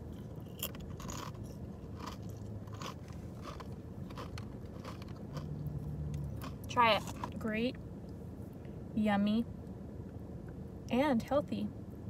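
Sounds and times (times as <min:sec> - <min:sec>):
person chewing crunchy snack: 0:00.0 - 0:07.4.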